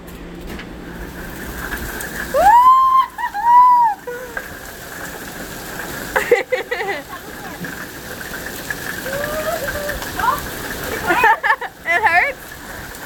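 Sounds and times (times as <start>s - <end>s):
heavy rain and hail: 0.7s - 13.0s
person crying out high-pitched: 2.4s - 4.4s, 9.0s - 10.0s.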